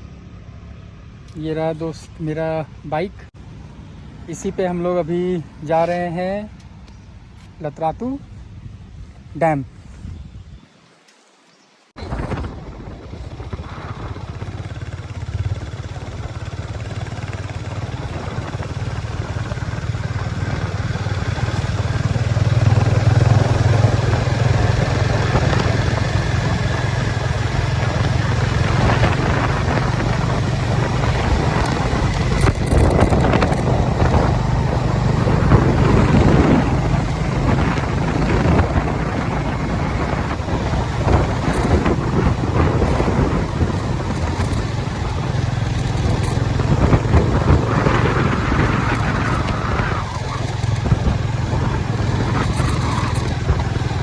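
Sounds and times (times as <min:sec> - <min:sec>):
wind noise: 0:07.2 - 0:10.8, 0:12.0 - 0:54.0
motorcycle engine running: 0:12.0 - 0:54.0.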